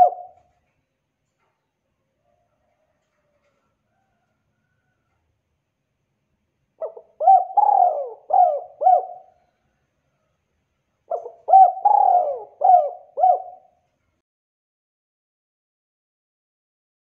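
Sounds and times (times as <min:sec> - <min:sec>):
dove cooing: 0:00.0 - 0:00.5, 0:06.8 - 0:09.4, 0:11.1 - 0:13.8.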